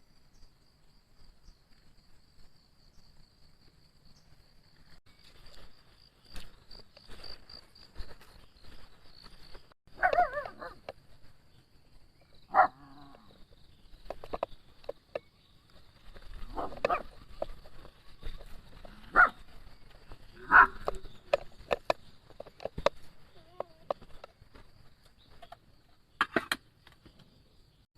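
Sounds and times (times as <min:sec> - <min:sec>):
animal yelps or whines: 0:10.0 - 0:10.8.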